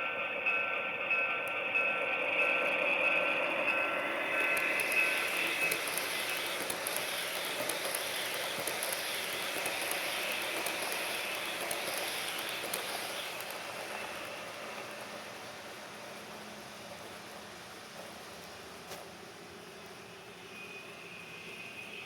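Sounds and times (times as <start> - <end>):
steady tone: 0.0 - 7.4
model train wheels ticking on rails: 0.0 - 17.4
model locomotive engine sound: 0.0 - 22.0.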